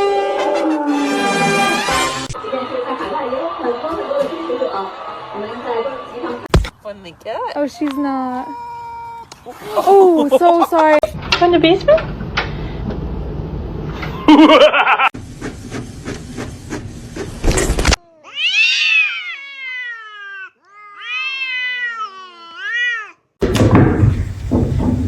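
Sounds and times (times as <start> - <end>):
rustling noise: 15.2 - 18.0
cat meowing: 18.0 - 23.2.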